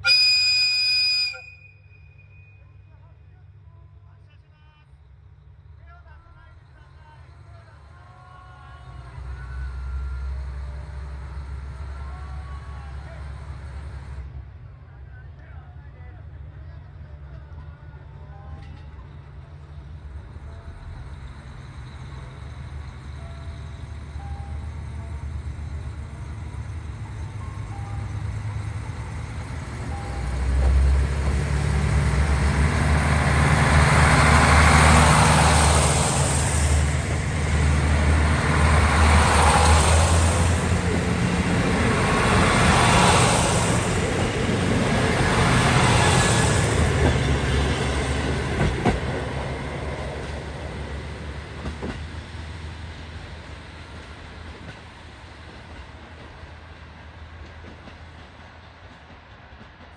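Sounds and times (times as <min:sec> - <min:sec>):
diesel train engine droning: 0:00.0 - 0:59.9
train wheels rolling past: 0:16.8 - 0:59.9.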